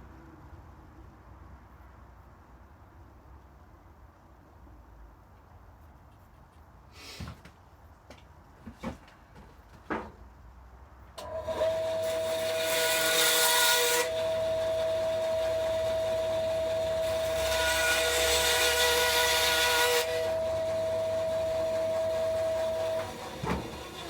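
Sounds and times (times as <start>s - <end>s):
high-speed power tool whining: 14.0s - 24.0s.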